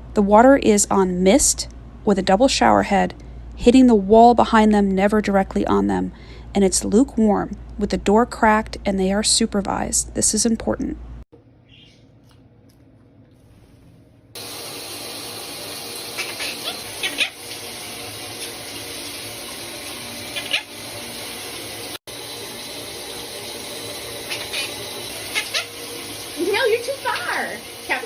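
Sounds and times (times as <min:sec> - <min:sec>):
parrots calling: 0:11.6 - 0:12.2, 0:16.0 - 0:17.5, 0:20.3 - 0:20.7, 0:24.2 - 0:25.8
shower head spraying water: 0:14.4 - 0:28.0.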